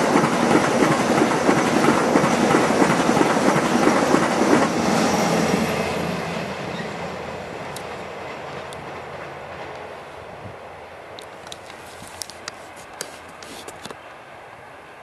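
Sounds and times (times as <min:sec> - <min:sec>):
freight train rumbling: 0:00.0 - 0:11.7.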